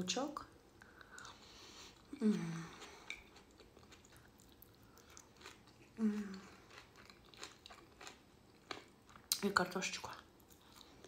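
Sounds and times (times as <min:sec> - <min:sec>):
woman chewing: 0:00.8 - 0:09.4
hummed mmm: 0:02.1 - 0:03.2, 0:05.8 - 0:06.6.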